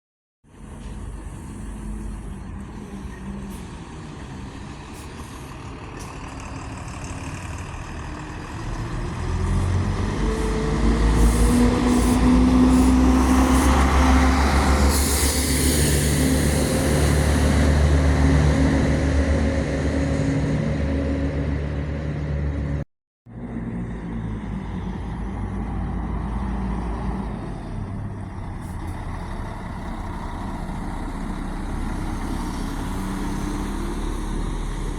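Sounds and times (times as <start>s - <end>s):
traffic noise: 0.4s - 34.9s
bus diesel engine passing: 0.5s - 34.9s
air brake hiss: 11.2s - 17.8s.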